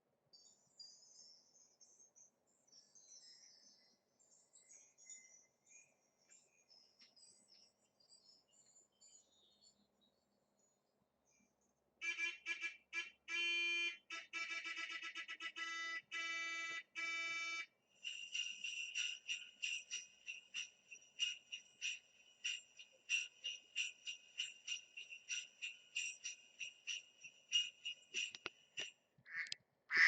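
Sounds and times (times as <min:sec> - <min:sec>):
jingle bells shaken: 0:17.9 - 0:29.1.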